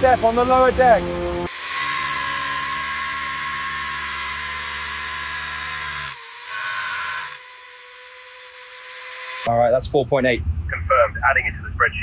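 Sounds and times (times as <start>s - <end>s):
low machine hum: 0.0s - 1.5s, 9.6s - 12.0s.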